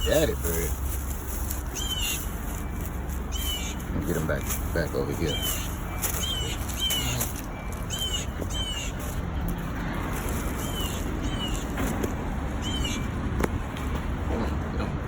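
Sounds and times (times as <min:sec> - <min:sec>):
low rumble: 0:00.0 - 0:08.4
songbird alarm chirps: 0:00.0 - 0:09.6, 0:10.4 - 0:11.9, 0:12.5 - 0:13.2.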